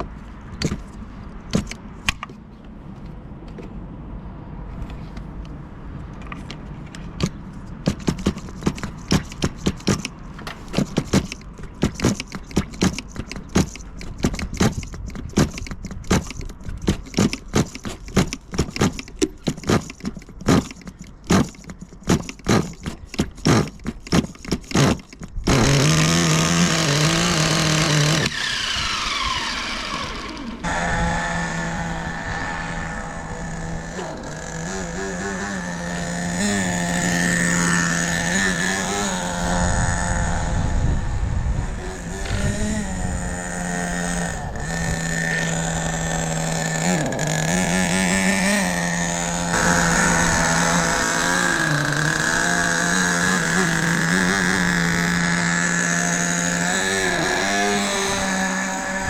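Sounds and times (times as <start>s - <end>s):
rc car nitro engine drone: 23.5s - 59.0s.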